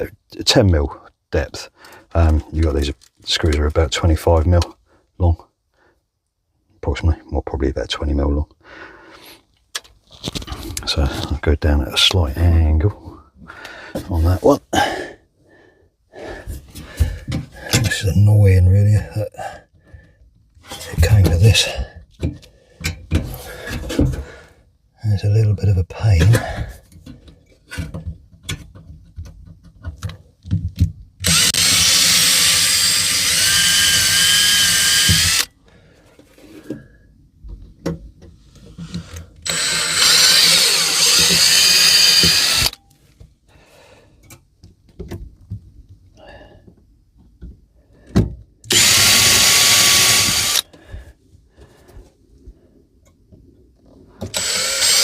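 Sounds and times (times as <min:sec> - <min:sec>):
power drill drilling: 0:31.2 - 0:35.5, 0:39.4 - 0:42.8, 0:48.7 - 0:50.7, 0:54.3 - 0:55.0.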